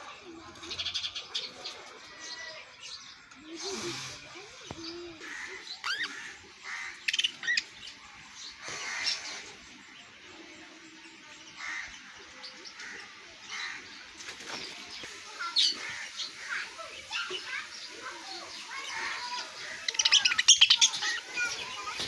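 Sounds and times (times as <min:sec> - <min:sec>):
birds chirping: 0:00.0 - 0:22.0
wings fluttering: 0:13.6 - 0:22.0.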